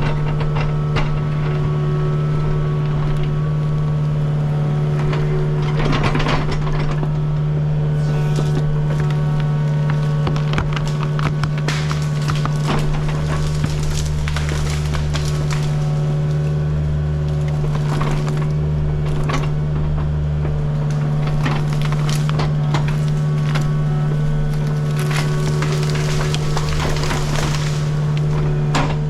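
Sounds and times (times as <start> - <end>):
excavator diesel engine rumble: 0.0 - 29.0
wood cracking and splintering: 10.4 - 18.5, 20.9 - 29.0.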